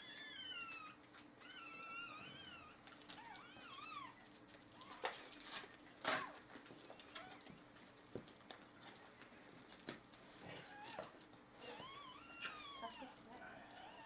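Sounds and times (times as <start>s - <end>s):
puppy crying: 10.6s - 14.0s.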